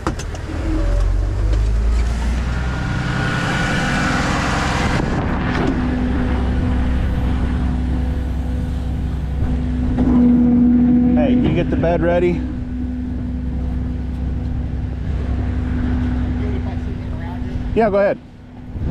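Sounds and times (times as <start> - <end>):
rushing noise: 1.8 - 18.9
vehicle engine idling: 5.8 - 18.8.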